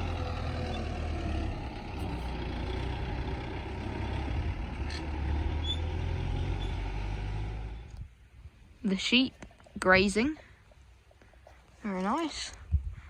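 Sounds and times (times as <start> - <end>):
tractor engine humming: 0.0 - 8.2.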